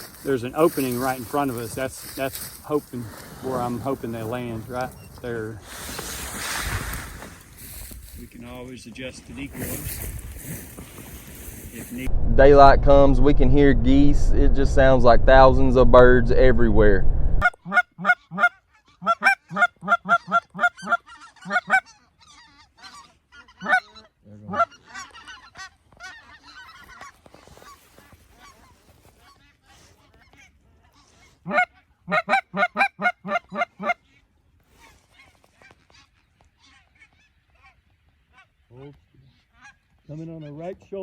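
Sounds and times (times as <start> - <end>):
goose honking: 17.4 - 38.6
faint honks of other geese: 17.4 - 40.6.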